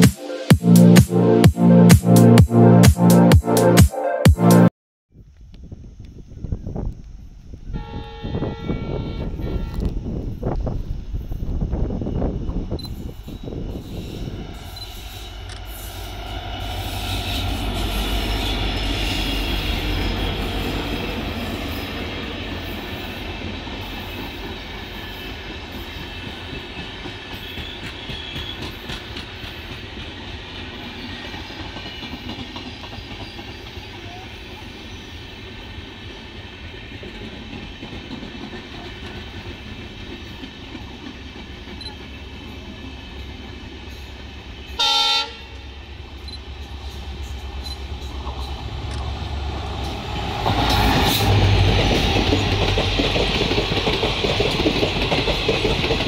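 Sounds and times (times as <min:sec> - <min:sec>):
diesel locomotive passing: 0:06.3 - 0:56.0
passenger coaches rumbling past: 0:06.6 - 0:56.0
locomotive horn blast: 0:07.7 - 0:10.1, 0:44.8 - 0:45.6.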